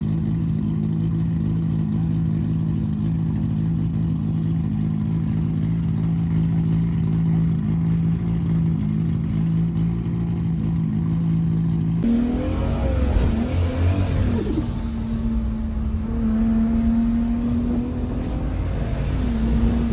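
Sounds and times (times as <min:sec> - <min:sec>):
car engine idling and revving: 0:00.0 - 0:19.9.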